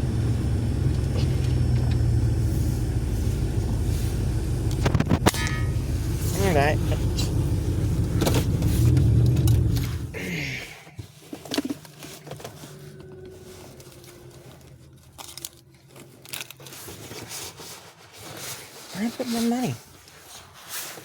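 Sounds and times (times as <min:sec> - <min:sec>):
engine winding down: 0:00.0 - 0:10.2, 0:11.5 - 0:17.8
car engine running: 0:00.0 - 0:17.8
clicks and rustling in car: 0:06.4 - 0:10.1, 0:11.0 - 0:21.0.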